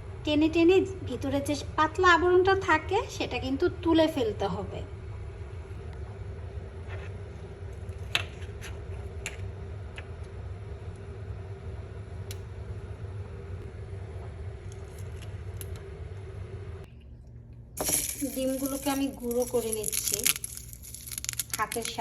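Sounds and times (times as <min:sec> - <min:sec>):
low background rumble and hum: 0:00.0 - 0:22.0
eggshells clicking and crackling: 0:17.8 - 0:22.0.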